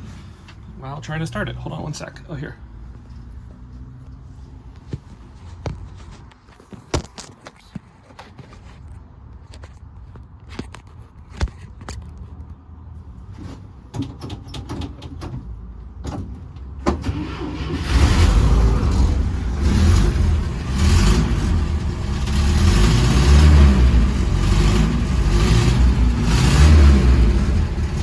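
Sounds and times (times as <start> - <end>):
engine starting and rumbling: 13.6 - 28.0
engine clicks and knocks: 13.9 - 28.0.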